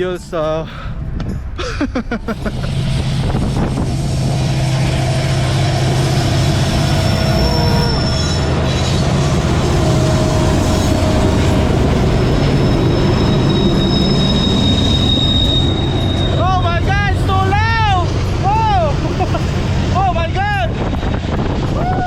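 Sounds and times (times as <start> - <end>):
train rumbling past: 0.0 - 22.0
high wheel squeals: 2.8 - 18.9.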